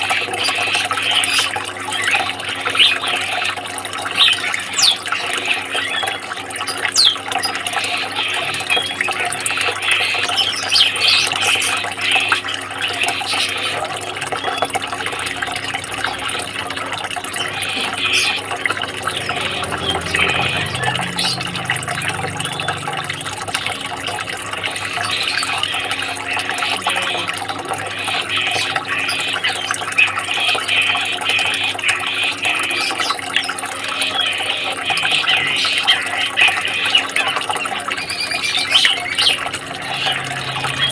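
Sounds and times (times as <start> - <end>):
songbirds chirping: 4.0 - 9.2.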